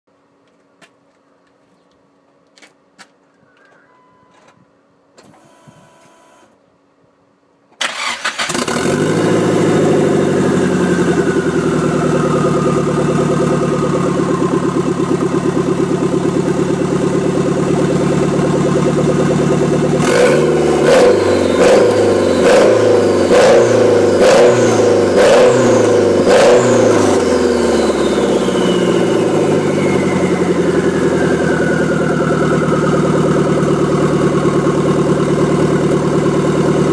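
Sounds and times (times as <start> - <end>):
turbocharged engine idling and revving: 8.0 - 36.9.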